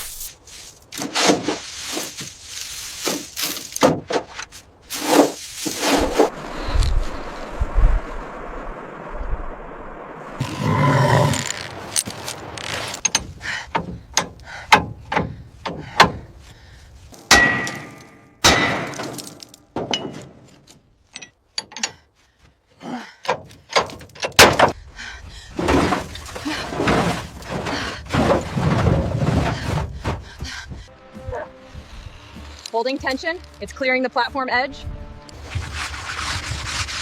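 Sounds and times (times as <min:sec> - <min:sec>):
knocks and clanks: 0:13.0 - 0:16.4, 0:17.2 - 0:22.1
crashing and breaking: 0:17.3 - 0:20.5.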